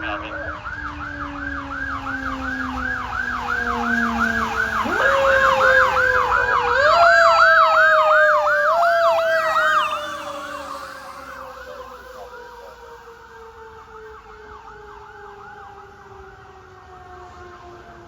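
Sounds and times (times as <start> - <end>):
siren fast yelp: 0.0 - 13.5
lower siren tone winding: 2.0 - 12.5.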